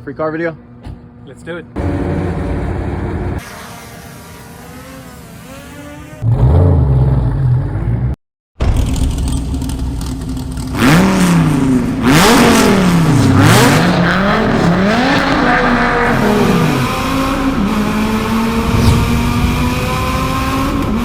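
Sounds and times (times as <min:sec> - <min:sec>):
car engine revving: 0:01.8 - 0:07.1, 0:10.8 - 0:21.0.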